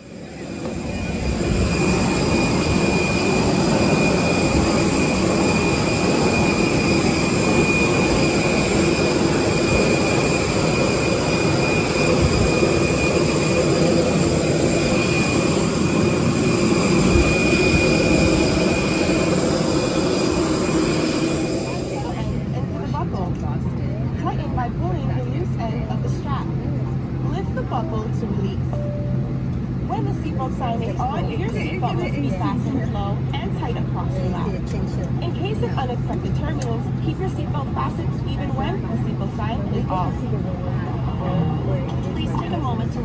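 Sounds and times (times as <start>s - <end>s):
high-pitched whine: 0.0s - 22.0s
airplane cabin air rush: 0.0s - 22.9s.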